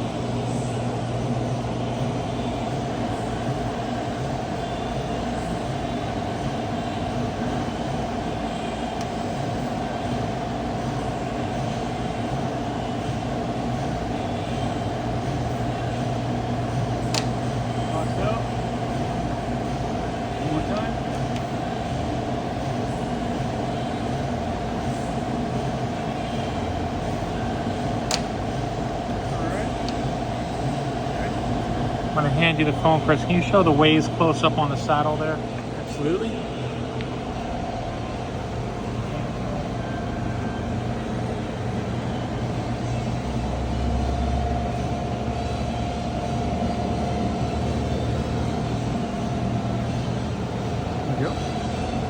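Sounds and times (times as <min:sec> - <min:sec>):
milling machine spindle whine: 0:00.0 - 0:52.0
sharp click: 0:28.1 - 0:28.3.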